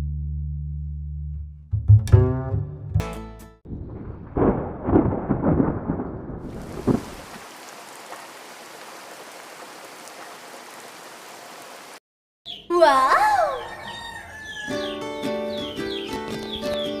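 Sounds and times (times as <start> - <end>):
thunder rumbling: 3.7 - 9.3
rain hissing: 6.4 - 12.0.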